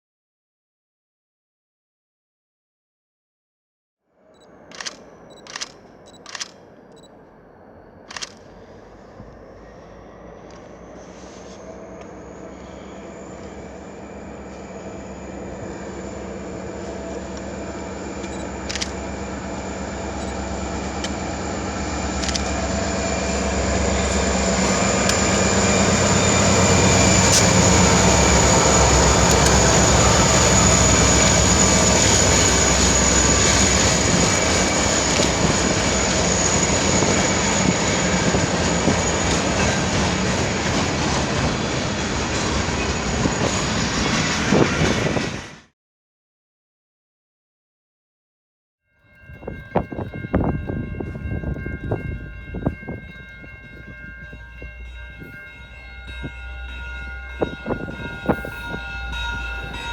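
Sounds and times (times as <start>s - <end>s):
train rumbling past: 4.2s - 45.7s, 49.0s - 59.9s
sharp clicks: 4.7s - 7.1s
thin high whine: 12.4s - 39.4s, 54.9s - 59.9s.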